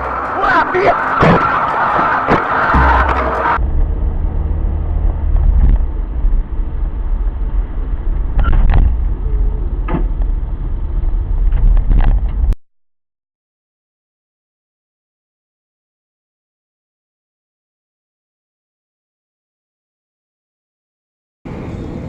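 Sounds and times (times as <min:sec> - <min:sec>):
car engine and road rumble: 0:00.0 - 0:12.6, 0:21.5 - 0:22.0.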